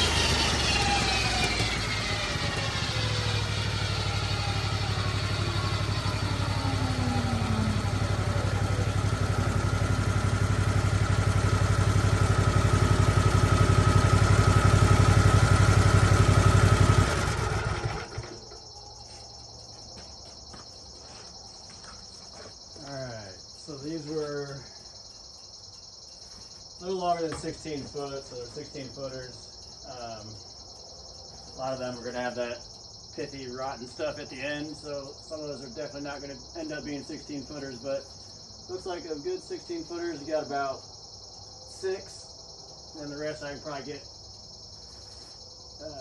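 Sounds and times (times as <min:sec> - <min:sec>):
sawmill engine running: 0:00.0 - 0:18.6
insects chirping: 0:00.0 - 0:46.0.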